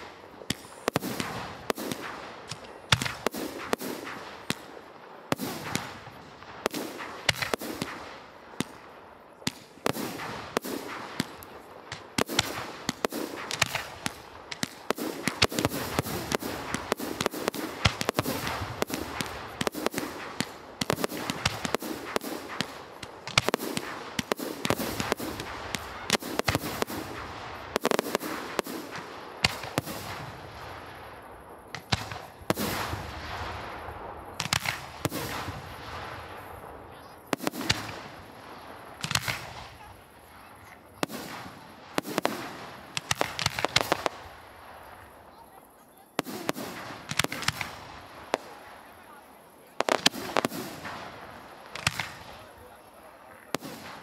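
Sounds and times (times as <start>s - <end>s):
firework crackling: 0.0s - 54.0s
firework shells bursting: 9.5s - 30.4s, 31.7s - 33.6s, 37.3s - 45.2s, 46.2s - 48.7s, 49.8s - 52.5s.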